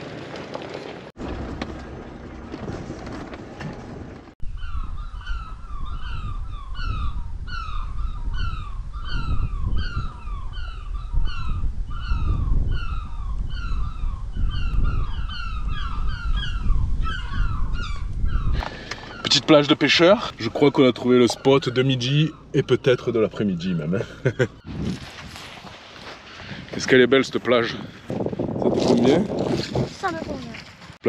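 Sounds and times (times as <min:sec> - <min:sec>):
vehicle driving on dirt track: 0:00.0 - 0:04.4
low rumble: 0:01.2 - 0:05.0
birds short falling calls: 0:04.5 - 0:25.1.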